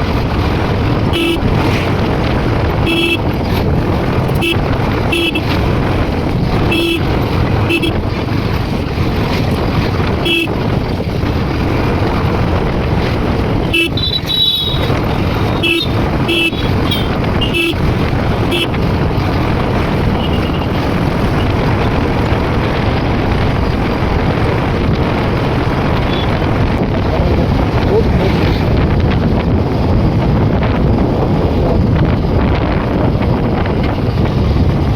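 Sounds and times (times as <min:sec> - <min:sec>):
motorcycle engine: 0:00.0 - 0:34.9
wind noise: 0:00.0 - 0:34.9
vehicle horn toots: 0:01.0 - 0:01.7, 0:02.8 - 0:03.4, 0:04.3 - 0:05.7, 0:06.5 - 0:08.1, 0:10.2 - 0:10.7, 0:13.6 - 0:18.8, 0:20.1 - 0:20.8, 0:26.0 - 0:26.4.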